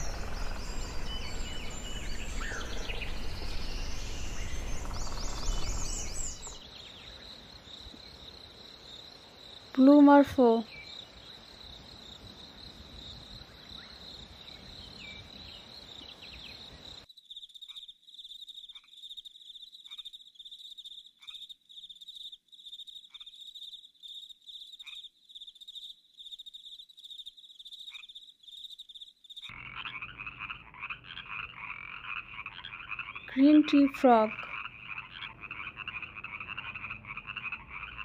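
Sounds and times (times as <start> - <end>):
raspy tree frog call: 0.0 - 7.5, 16.0 - 38.0
frogs trilling: 0.0 - 38.0
rushing forest background: 0.0 - 38.0
faint short frog chirp: 17.2 - 33.3.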